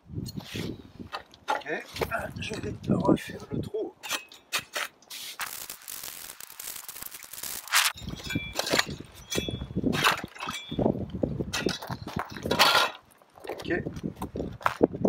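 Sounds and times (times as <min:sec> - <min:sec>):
crunching strokes into ice: 0:04.2 - 0:09.4
ice scraping hiss: 0:04.8 - 0:08.0.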